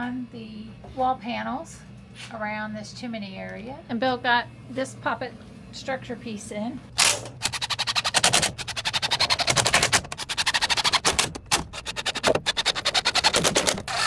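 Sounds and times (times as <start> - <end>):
rapid sharp clicks: 7.0 - 14.0.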